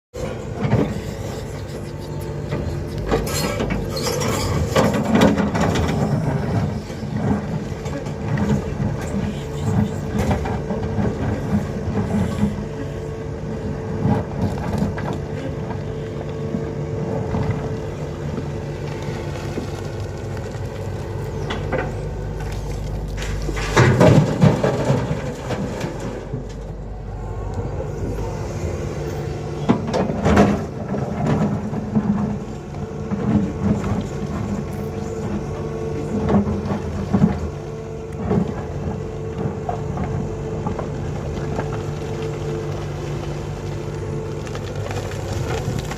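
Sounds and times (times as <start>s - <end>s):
excavator diesel engine running: 0.2s - 45.9s
loud rush of noise: 26.0s - 29.8s.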